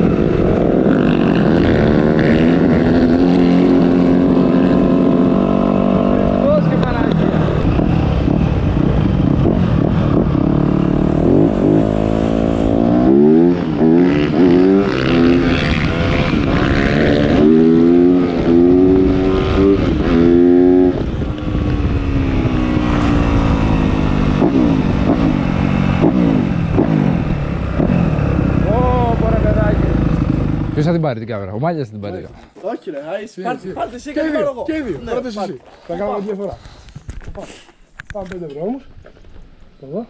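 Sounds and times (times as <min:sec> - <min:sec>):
motocross bike engine revving: 0:00.0 - 0:30.9.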